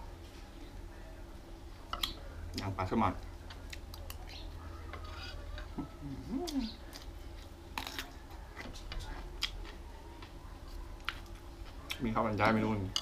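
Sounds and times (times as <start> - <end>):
person chewing food: 3.4 - 12.1
crisp cucumber crunch: 6.3 - 8.2.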